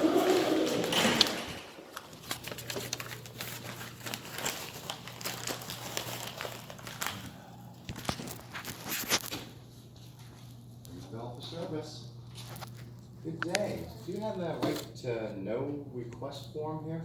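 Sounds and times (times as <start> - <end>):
paper crinkling and rustling: 0.0 - 9.6, 12.2 - 15.0
steady low hum: 0.0 - 17.0.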